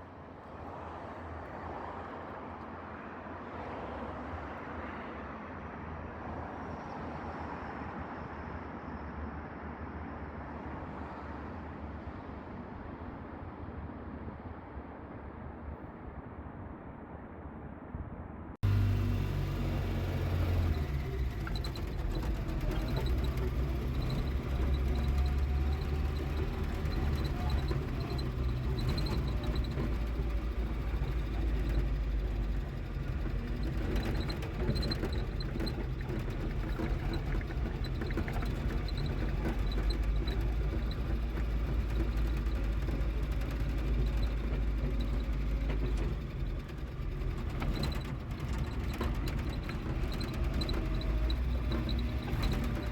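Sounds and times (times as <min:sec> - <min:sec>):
vehicle engine rumbling: 0:18.6 - 0:52.9.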